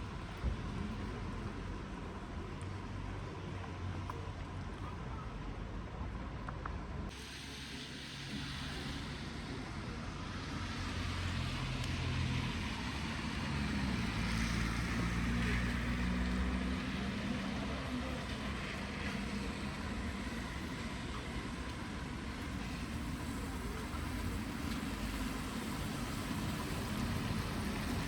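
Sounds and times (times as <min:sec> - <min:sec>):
rain hissing: 0:07.1 - 0:28.0
vehicle passing slowly: 0:07.7 - 0:28.0.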